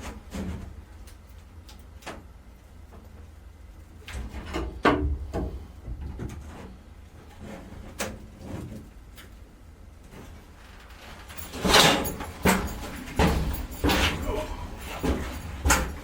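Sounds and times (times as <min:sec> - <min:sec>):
steady low rumble: 0:12.1 - 0:16.0.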